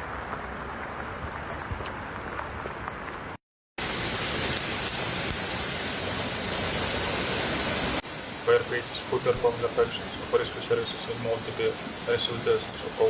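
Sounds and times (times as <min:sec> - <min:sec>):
floodwater rushing: 0:03.2 - 0:13.0.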